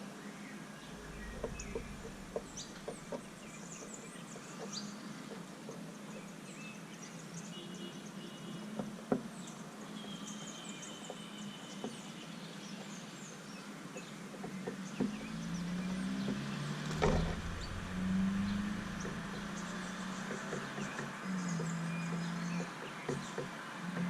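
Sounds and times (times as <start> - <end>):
songbirds chirping: 0.0 - 24.0
low droning sound: 0.8 - 4.0, 15.3 - 20.5
brief knock: 16.8 - 20.7.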